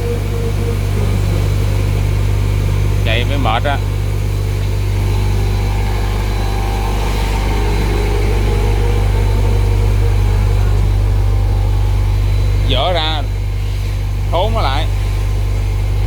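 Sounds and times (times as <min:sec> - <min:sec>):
tissue folding machine humming: 0:00.0 - 0:16.0.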